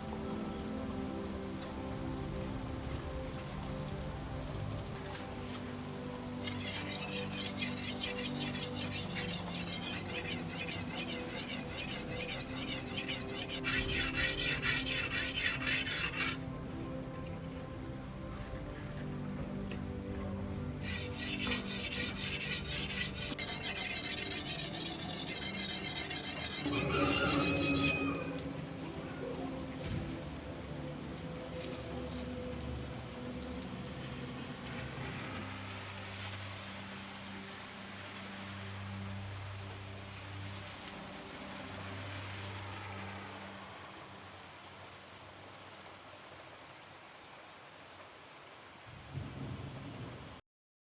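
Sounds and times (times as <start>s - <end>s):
faint steady rain: 0.0s - 50.4s
abrasive rasping against steel: 6.4s - 16.4s, 20.8s - 28.6s.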